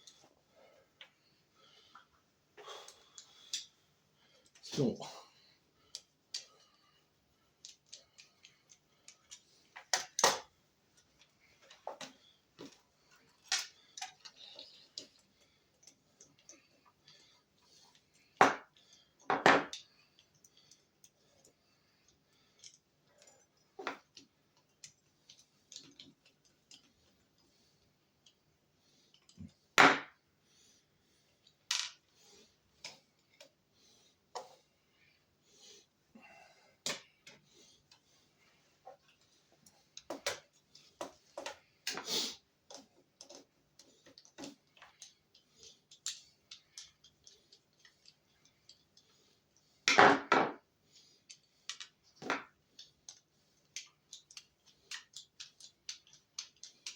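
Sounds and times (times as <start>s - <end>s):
light clicks and taps: 42.6s - 49.7s, 51.3s - 56.9s.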